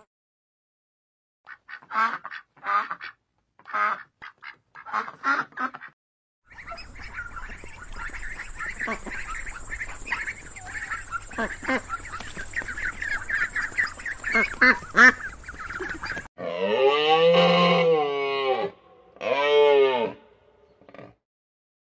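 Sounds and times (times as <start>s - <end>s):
duck quacking: 1.5s - 16.3s
ducklings peeping: 6.5s - 16.3s.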